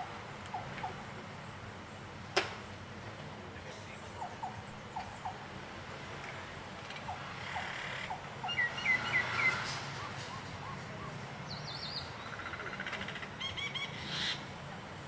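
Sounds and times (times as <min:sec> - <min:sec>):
birds chirping: 0:03.5 - 0:15.0.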